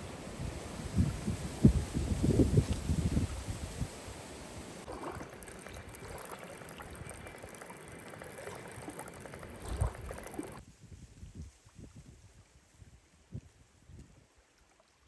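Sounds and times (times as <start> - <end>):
water washing and splashing: 0.0 - 10.6
quiet outdoor background: 0.0 - 15.0.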